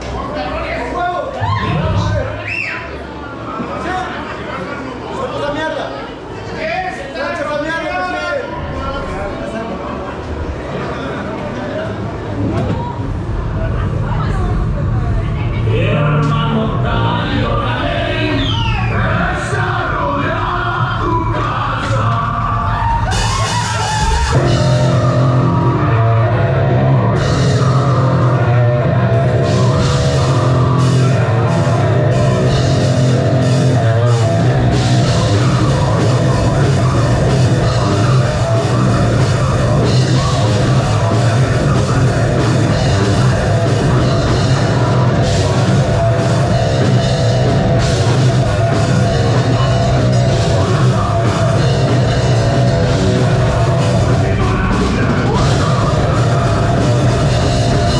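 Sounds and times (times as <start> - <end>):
bass guitar: 1.4 - 2.4, 12.1 - 57.9
distorted guitars: 13.0 - 57.9
drum kit: 14.5 - 57.9.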